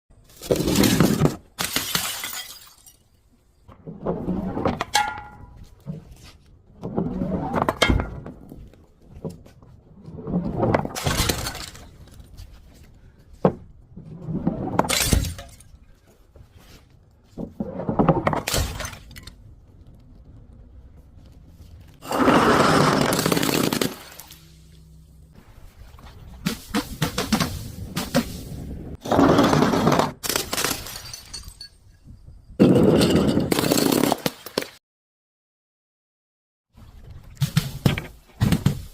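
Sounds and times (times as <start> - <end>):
glass bottles smashing: 0.6 - 3.2, 11.0 - 12.1, 14.9 - 15.8, 30.3 - 31.9.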